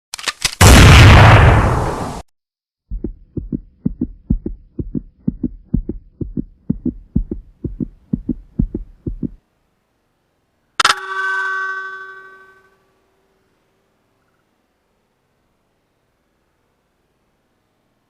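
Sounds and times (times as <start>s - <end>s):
low heartbeat thumps: 2.9s - 9.4s
faint hum: 2.9s - 18.0s.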